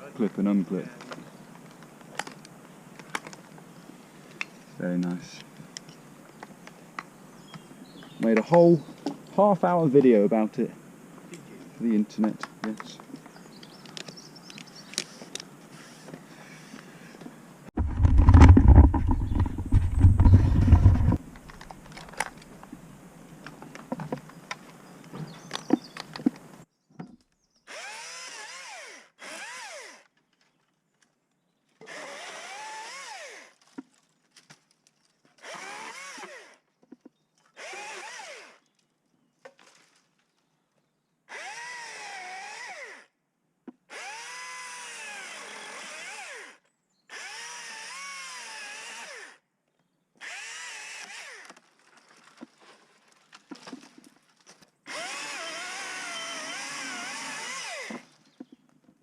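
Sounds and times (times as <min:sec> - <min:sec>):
chainsaw revving: 0:17.8 - 0:21.2, 0:31.9 - 0:33.5, 0:35.4 - 0:36.6, 0:37.6 - 0:38.6, 0:43.9 - 0:49.4, 0:50.2 - 0:51.5, 0:54.9 - 0:58.1.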